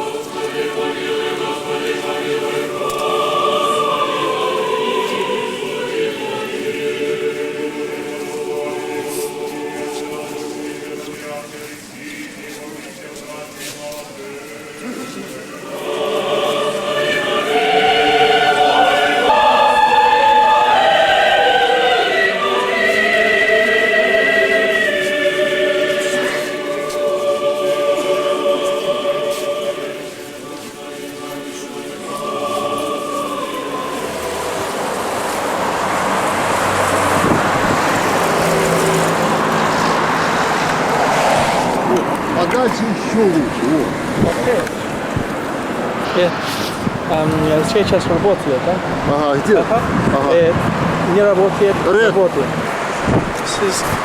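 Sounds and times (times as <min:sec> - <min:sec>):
high voice singing: 0:00.0 - 0:41.9
choir chanting unaccompanied: 0:00.0 - 0:54.0.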